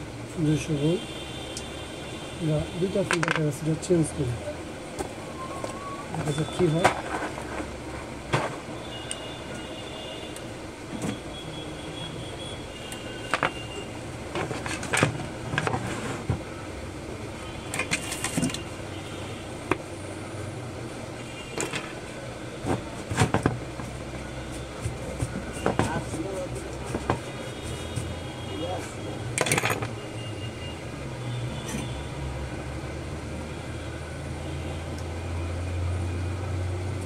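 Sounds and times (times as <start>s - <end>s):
road traffic rumble: 0.0s - 37.0s
clicks and knocks of tools: 3.1s - 3.4s, 12.9s - 13.6s, 17.7s - 18.7s, 21.6s - 22.0s, 29.4s - 30.0s.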